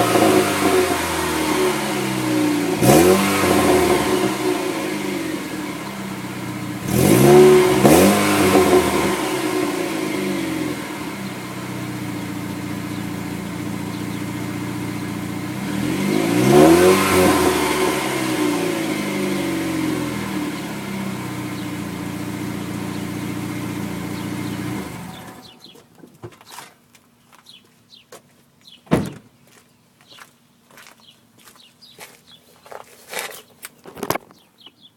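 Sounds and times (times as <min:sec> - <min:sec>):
car engine idling and revving: 0:00.0 - 0:25.7.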